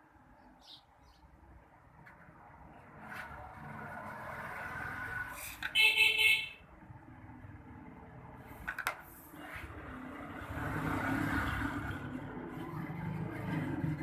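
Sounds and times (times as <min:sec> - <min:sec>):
street traffic rumble: 0:00.0 - 0:14.0
vehicle passing: 0:02.4 - 0:05.7, 0:06.8 - 0:14.0.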